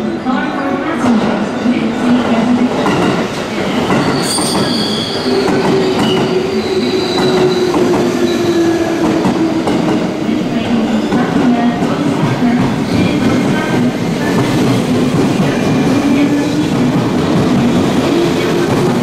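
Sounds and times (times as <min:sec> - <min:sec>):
train wheels rumbling on rails: 0:01.0 - 0:19.0
high-pitched wheel squeals: 0:04.0 - 0:08.6.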